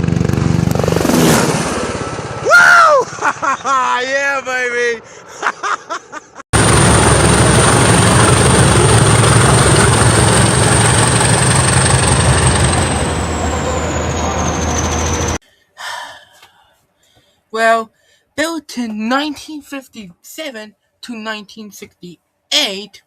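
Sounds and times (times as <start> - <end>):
loud engine with high whine: 6.6 - 15.4.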